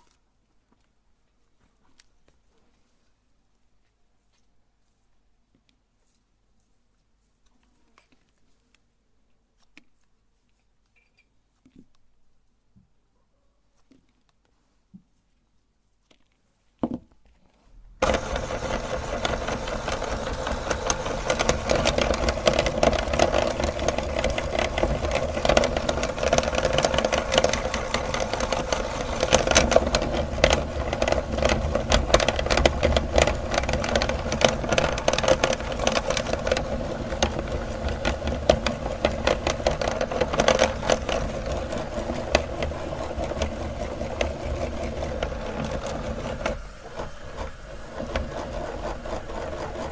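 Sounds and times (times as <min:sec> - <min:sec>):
crackle of grinding clicks: 0:18.0 - 0:49.9
electric meat grinder motor: 0:18.0 - 0:49.9.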